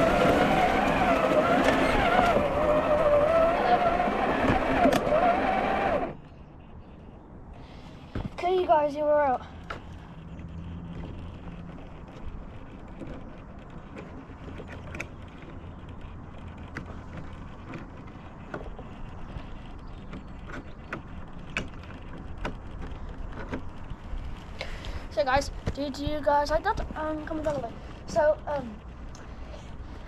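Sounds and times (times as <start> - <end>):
toy car electric motor whirring: 0.0 - 7.1, 9.1 - 25.1.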